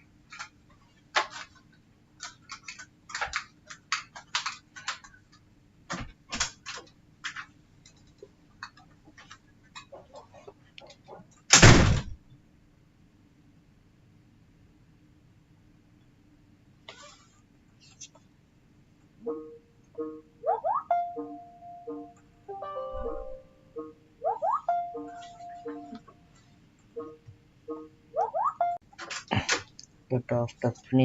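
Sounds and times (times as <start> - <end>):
laptop parts clicking and tapping: 2.2 - 9.9.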